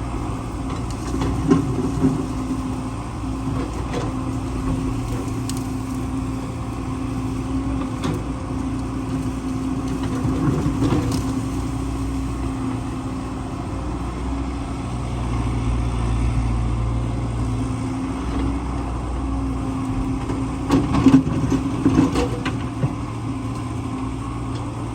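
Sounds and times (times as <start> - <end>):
excavator diesel engine running: 0.0 - 24.9.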